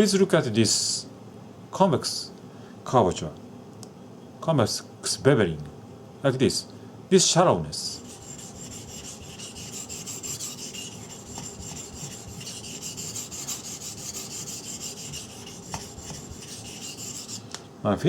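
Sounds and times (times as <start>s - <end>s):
knife scraping on whetstone: 8.0s - 17.5s.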